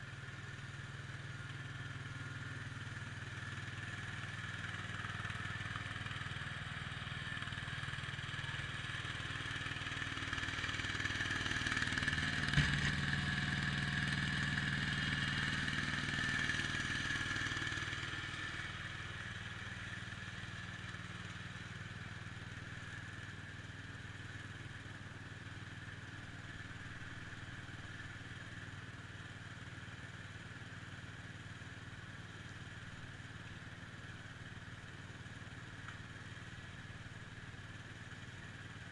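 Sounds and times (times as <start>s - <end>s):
garden tractor engine running: 0.0s - 29.2s.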